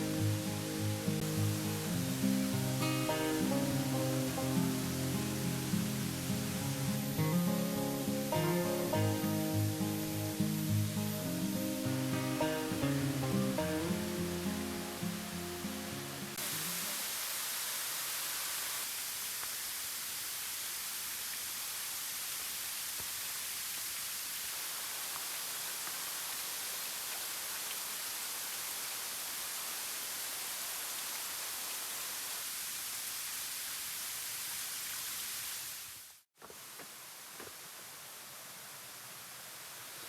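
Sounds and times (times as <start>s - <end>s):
guitar music: 0.0s - 16.8s
waterfall rushing: 0.0s - 35.4s.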